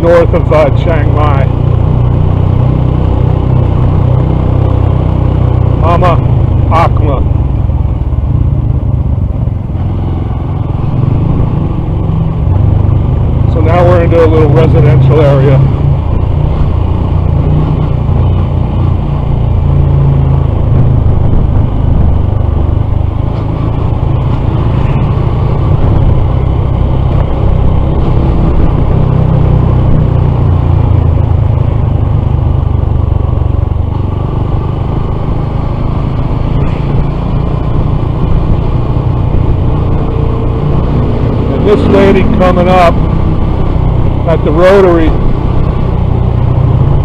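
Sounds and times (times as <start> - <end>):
motorcycle engine rumbling: 0.0 - 47.0
wind noise while riding: 15.6 - 41.5.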